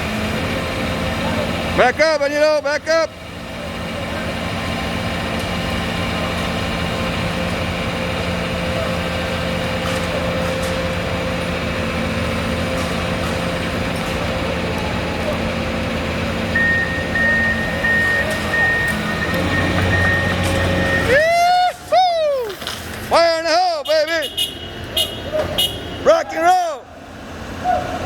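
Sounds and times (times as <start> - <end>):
excavator diesel engine running: 0.0 - 28.0
high reversing alarm beep: 16.5 - 21.2.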